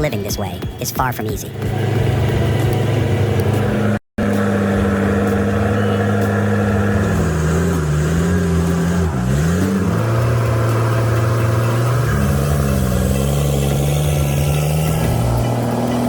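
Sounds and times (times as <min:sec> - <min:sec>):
truck engine under load: 0:01.4 - 0:16.0.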